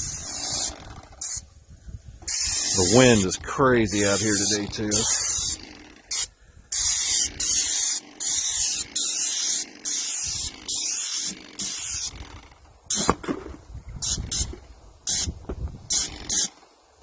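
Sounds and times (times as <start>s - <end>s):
paint sprayer hissing: 0.0s - 1.5s, 2.2s - 13.1s, 14.0s - 16.6s.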